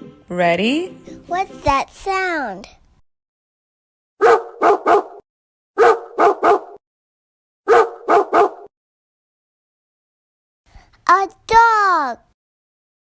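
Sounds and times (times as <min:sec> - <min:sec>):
dog barking: 0:04.2 - 0:05.2, 0:05.8 - 0:06.8, 0:07.7 - 0:08.7.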